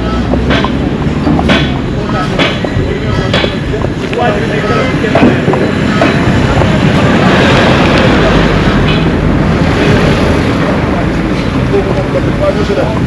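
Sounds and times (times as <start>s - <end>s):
vehicle passing with tyre noise: 3.8s - 13.0s.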